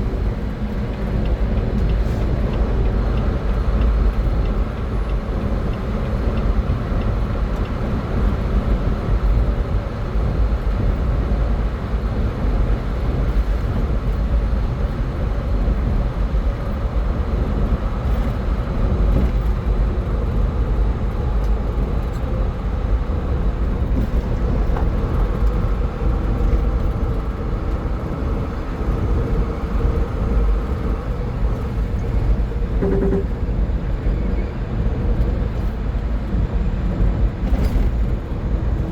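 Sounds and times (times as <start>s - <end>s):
car driving at highway speed: 0.0s - 34.0s
short tone: 32.8s - 33.3s.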